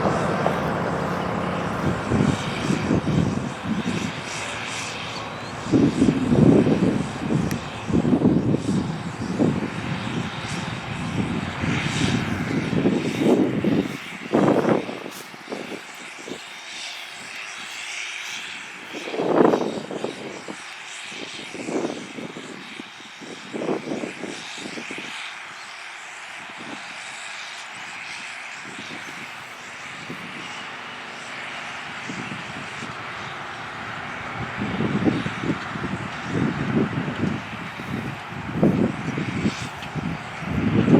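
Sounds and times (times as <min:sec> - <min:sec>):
tractor diesel engine under load: 0:00.0 - 0:20.3, 0:28.6 - 0:40.9.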